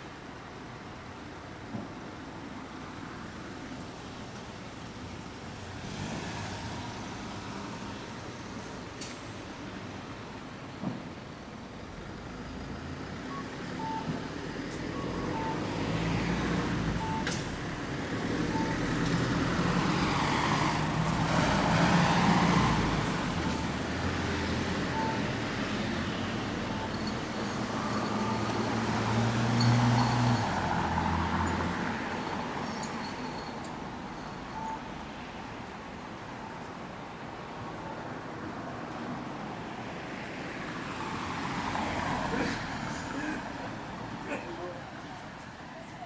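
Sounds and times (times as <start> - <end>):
cars passing: 3.5 - 10.1, 11.8 - 46.0
heavy vehicle engine hum: 6.7 - 46.0
faint short beeps: 24.9 - 25.3, 34.4 - 34.9.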